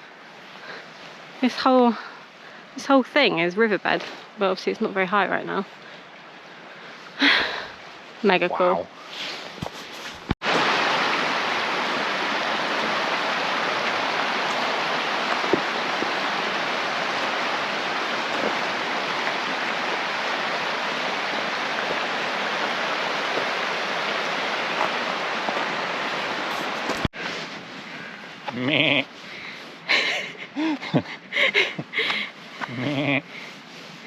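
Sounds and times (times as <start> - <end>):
stream rushing over rocks: 10.4 - 27.8.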